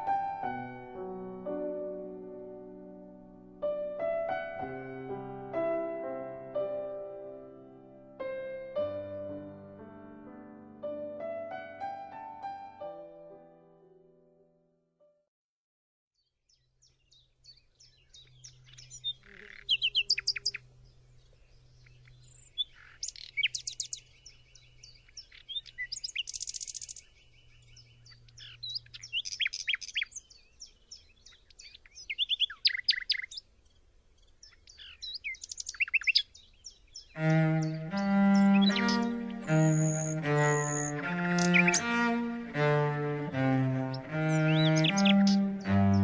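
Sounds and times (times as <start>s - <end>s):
nightingale singing: 16.2s - 46.0s.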